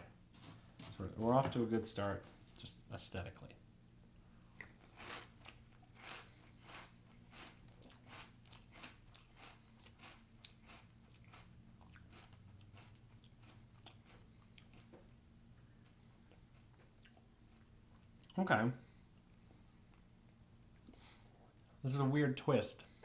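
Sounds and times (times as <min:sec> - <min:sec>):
person chewing crunchy cereal: 0:04.5 - 0:15.0.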